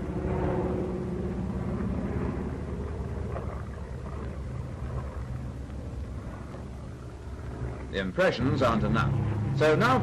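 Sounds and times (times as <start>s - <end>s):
aircraft engines droning: 0.0s - 10.0s.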